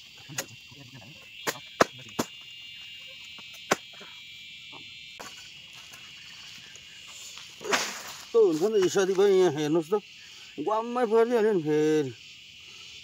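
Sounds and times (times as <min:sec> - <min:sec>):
high-pitched insect drone: 0:00.0 - 0:13.0
chopping strikes on bamboo: 0:01.4 - 0:02.4, 0:03.6 - 0:03.9.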